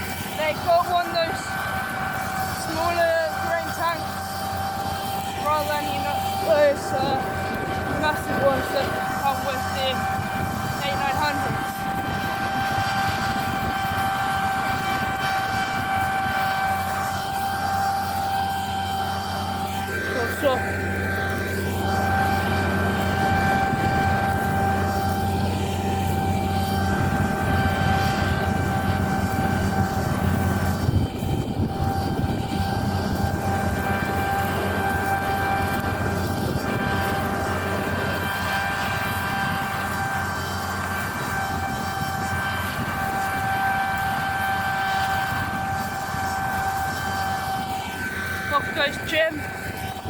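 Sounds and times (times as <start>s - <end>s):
combine harvester running: 0.0s - 50.0s
high even machinery whine: 0.0s - 50.0s.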